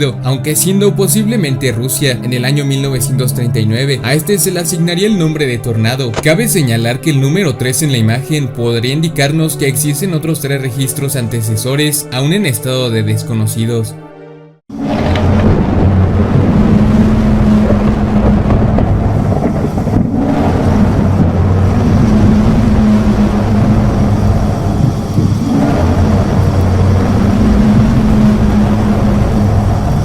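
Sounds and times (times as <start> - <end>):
loud rumbling drone: 14.7 - 30.0.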